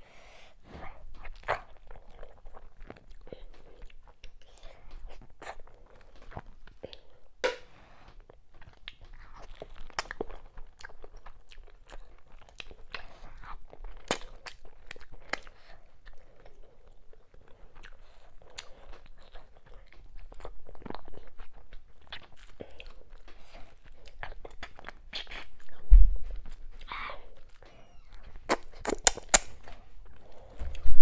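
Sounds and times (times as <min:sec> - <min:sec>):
wet chewing: 0:00.5 - 0:31.0
lip smacks: 0:00.8 - 0:31.0
low thump: 0:25.8 - 0:26.4
sharp mouth clicks: 0:28.5 - 0:29.8.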